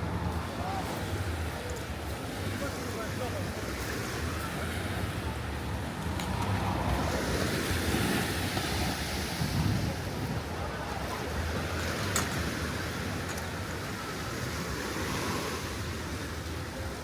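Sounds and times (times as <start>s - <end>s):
wind buffeting microphone: 5.5s - 11.8s.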